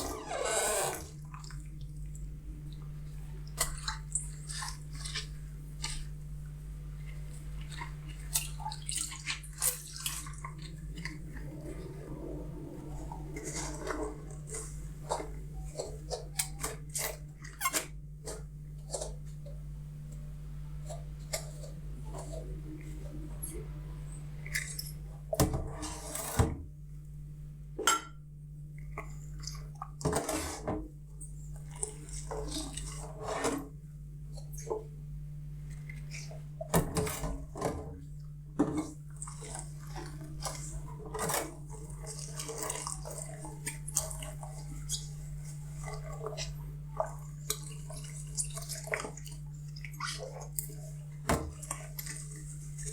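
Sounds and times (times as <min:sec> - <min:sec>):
steady low hum: 0:00.0 - 0:17.4, 0:18.0 - 0:25.8.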